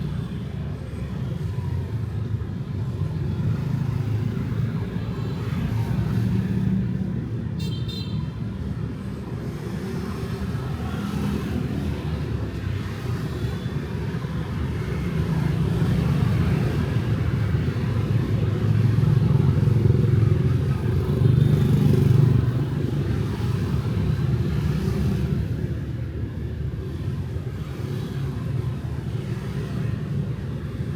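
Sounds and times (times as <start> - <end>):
street traffic rumble: 0.0 - 30.9.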